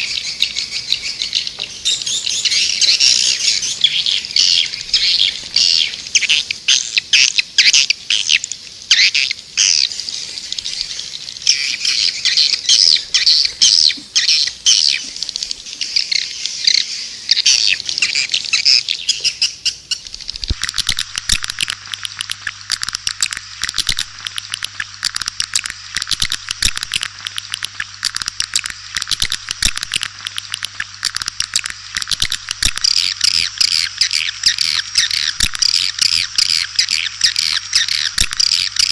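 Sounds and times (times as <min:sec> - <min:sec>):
low steady hum: 0:00.0 - 0:38.9
swiftlets twittering: 0:19.9 - 0:38.9.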